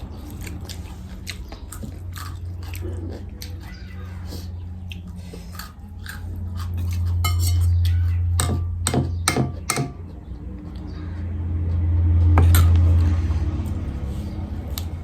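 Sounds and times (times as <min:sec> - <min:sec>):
low steady rumble: 0:00.0 - 0:15.0
tableware clinking: 0:07.2 - 0:07.8.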